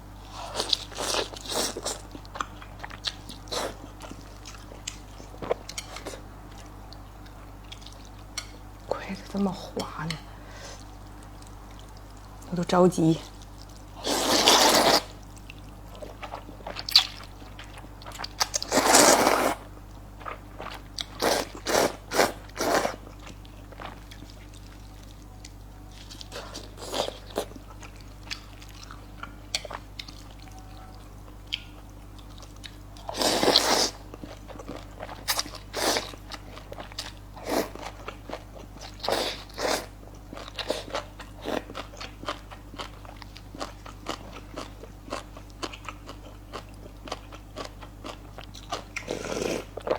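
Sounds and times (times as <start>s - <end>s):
biting and chewing noodles: 0.3s - 8.5s, 13.3s - 49.9s.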